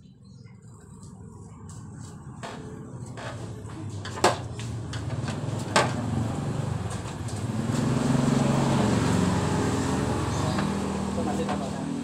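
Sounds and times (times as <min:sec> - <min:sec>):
motorcycle engine revving: 0:04.7 - 0:12.0.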